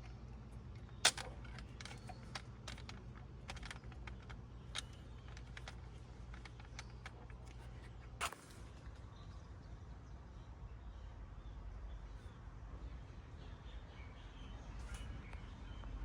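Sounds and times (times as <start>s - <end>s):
light clicks of small parts: 0.0s - 9.0s
low steady hum: 0.0s - 16.0s.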